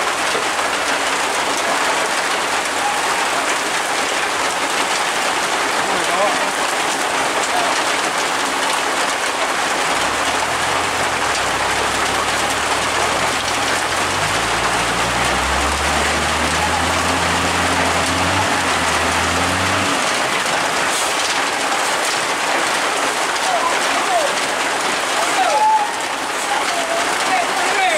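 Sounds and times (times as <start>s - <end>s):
heavy rain falling: 0.0s - 27.9s
vehicle engine hum: 9.7s - 21.9s.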